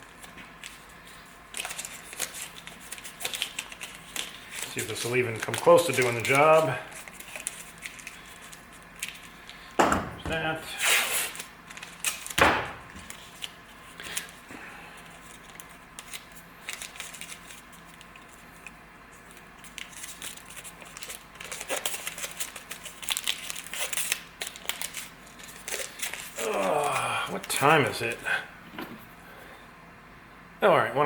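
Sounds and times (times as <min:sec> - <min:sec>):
tape crinkling and tearing: 0:00.0 - 0:09.7, 0:10.7 - 0:14.4, 0:15.0 - 0:28.2
sharp knock: 0:12.4 - 0:12.8.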